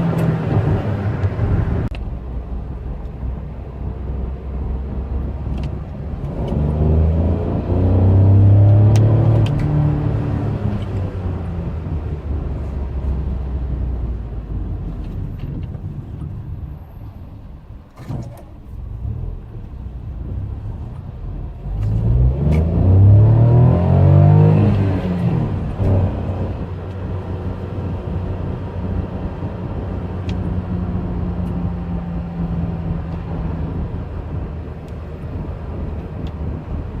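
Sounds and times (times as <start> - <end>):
road rumble: 0.0 - 37.0
car engine revving: 3.9 - 15.1, 18.7 - 37.0.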